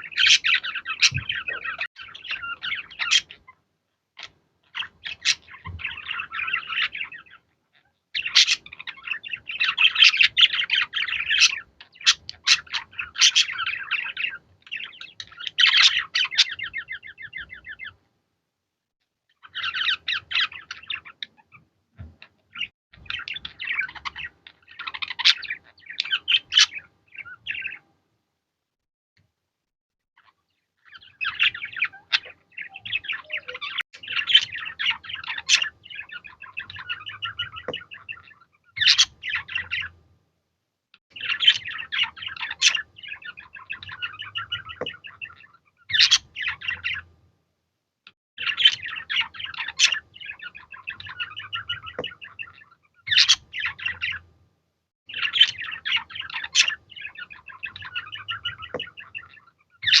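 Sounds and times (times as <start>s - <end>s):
budgerigars chirping and warbling: 0.0s - 3.6s, 4.2s - 18.0s, 19.3s - 27.9s, 30.2s - 40.0s, 41.1s - 47.1s, 48.4s - 54.2s, 55.1s - 60.0s.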